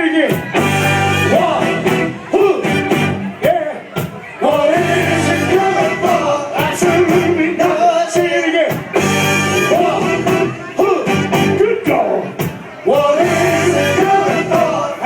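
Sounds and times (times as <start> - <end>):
steady drum beat: 0.2 - 15.0
soul band playing: 0.3 - 15.0.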